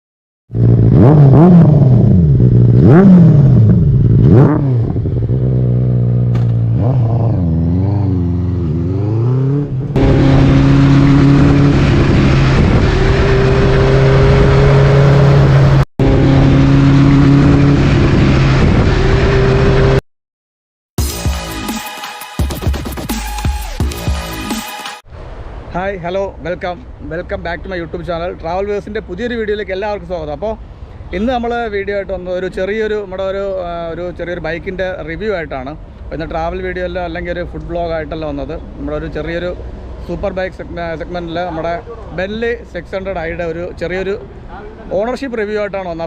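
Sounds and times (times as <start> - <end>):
motorcycle engine revving: 0.5 - 20.0.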